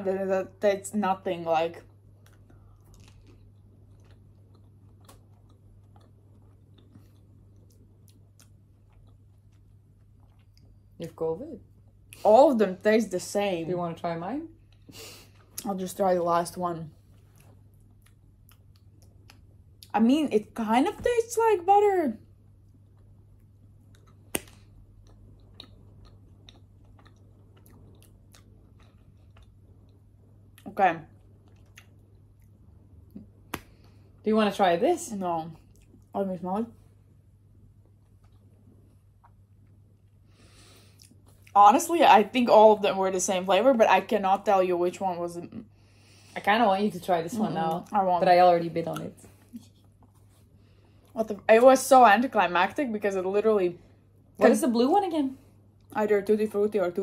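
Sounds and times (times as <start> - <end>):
low steady hum: 0.0 - 57.0
chewing with wet clicks: 1.8 - 11.0, 17.2 - 19.9, 22.6 - 33.7, 35.6 - 36.1, 38.0 - 40.2, 40.9 - 41.6
wet mouth clicks chewing: 23.9 - 30.7.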